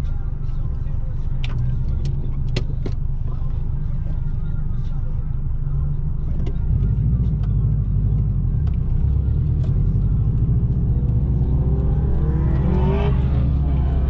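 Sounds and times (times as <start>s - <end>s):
car engine accelerating: 6.2s - 14.0s.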